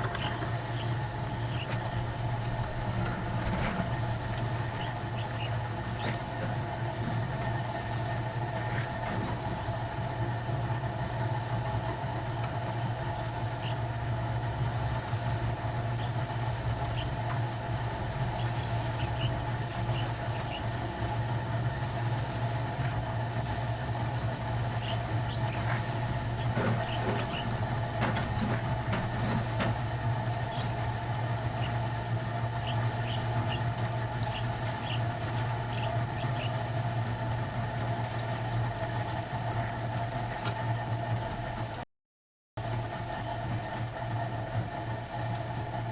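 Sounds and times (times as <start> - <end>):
machine humming: 0.0 - 41.7.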